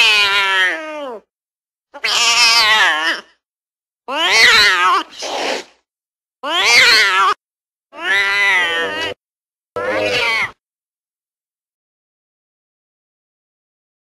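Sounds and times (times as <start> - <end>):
cat meowing: 0.0 - 1.2, 2.0 - 3.3, 4.1 - 5.2, 6.4 - 7.4, 8.0 - 9.2, 9.8 - 10.6.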